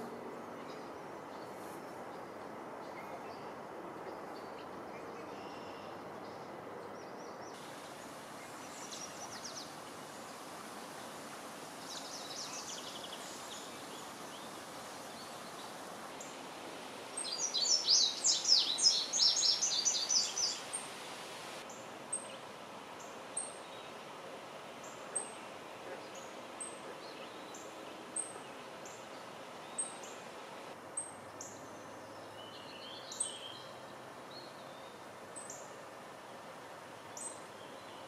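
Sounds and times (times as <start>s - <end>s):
outdoor ambience rush: 0.0s - 38.0s
songbirds singing: 4.1s - 11.2s, 11.8s - 22.4s, 24.8s - 35.7s.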